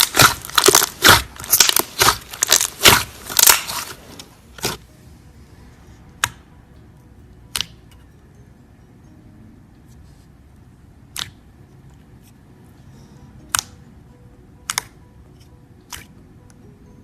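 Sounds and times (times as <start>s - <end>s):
slime clicking pops: 11.1s - 11.4s, 14.6s - 15.0s.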